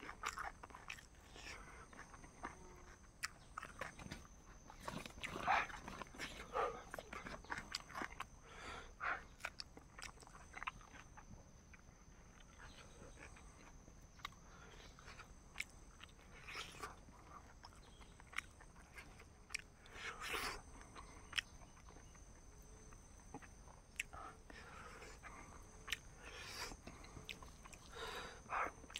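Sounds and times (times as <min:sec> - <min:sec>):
person chewing: 0:00.0 - 0:08.4, 0:09.3 - 0:28.9
small crunches: 0:00.0 - 0:08.4.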